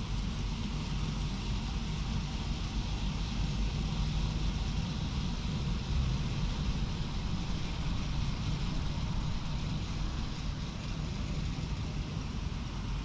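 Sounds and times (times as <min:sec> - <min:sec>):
train rumbling past: 0:00.0 - 0:13.0.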